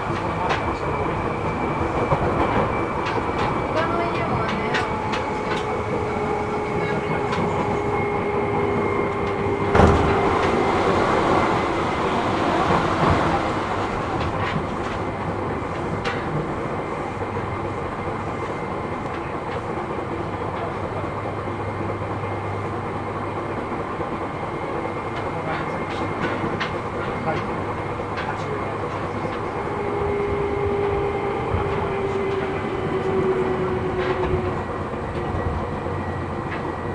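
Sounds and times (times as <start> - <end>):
train wheels rumbling on rails: 0.0 - 36.9.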